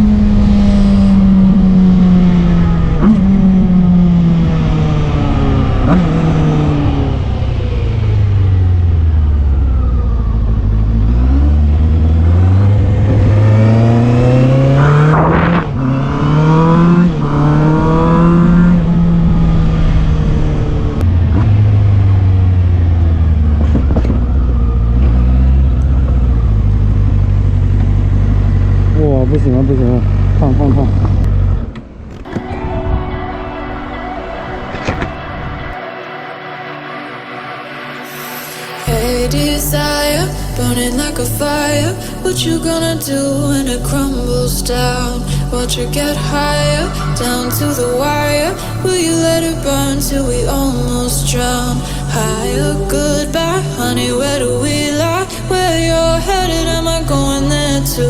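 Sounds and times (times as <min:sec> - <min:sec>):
motorcycle engine revving: 0:00.0 - 0:36.1
gear changes: 0:00.0 - 0:36.4.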